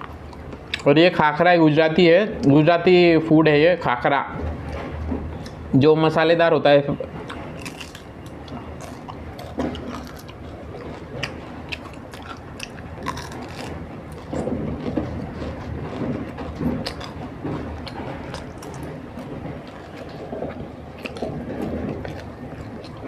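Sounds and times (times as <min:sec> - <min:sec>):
person chewing food: 0:07.2 - 0:23.0
crisp crackles: 0:07.4 - 0:23.0.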